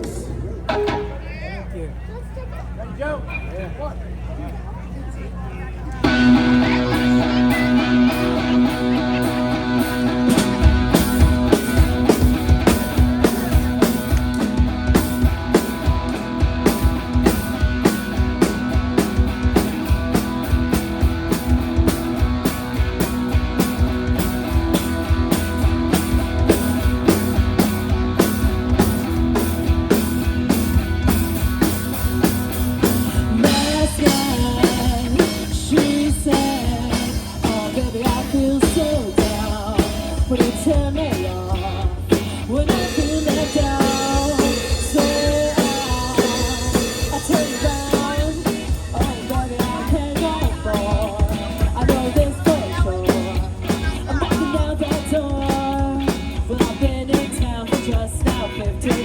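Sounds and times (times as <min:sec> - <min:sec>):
drum kit beating: 0:00.0 - 0:01.3, 0:06.0 - 0:59.0
electric guitar: 0:00.0 - 0:01.3, 0:05.9 - 0:59.0
bass guitar: 0:00.0 - 0:02.5, 0:05.9 - 0:59.0
wavering lead melody: 0:00.6 - 0:01.5.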